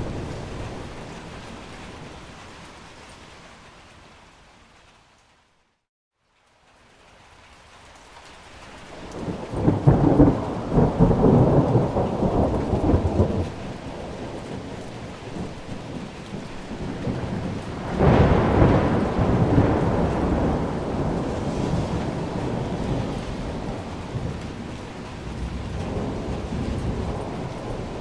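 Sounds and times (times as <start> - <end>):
steady rain: 0.0 - 28.0
rolling thunder: 9.1 - 28.0
sharp thunderclap: 9.2 - 14.7, 16.8 - 28.0.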